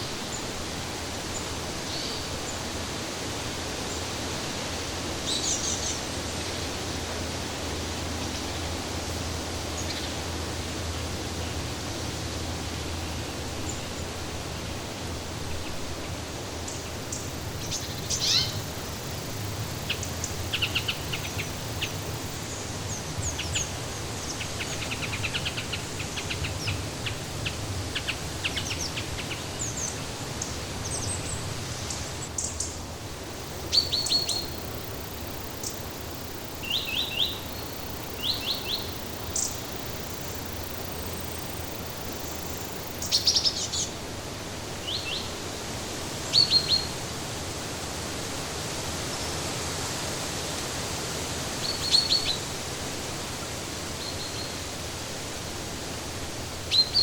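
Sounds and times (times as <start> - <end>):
steady rushing hiss: 0.0 - 57.0
small birds chirping: 16.6 - 32.8, 33.4 - 43.9.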